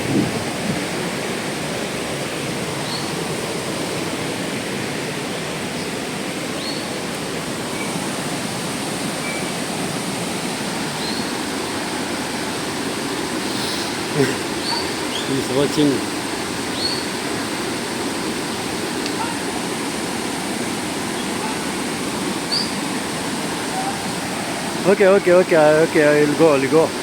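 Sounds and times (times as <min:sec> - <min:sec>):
waterfall roaring: 0:00.0 - 0:27.0.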